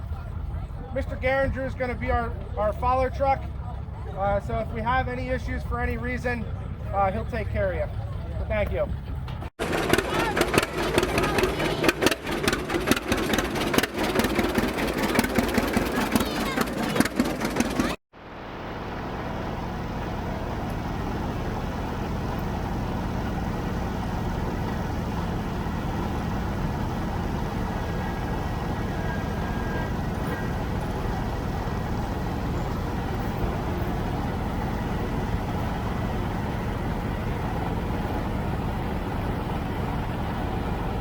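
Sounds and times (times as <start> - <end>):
tractor engine running: 0.0 - 41.0.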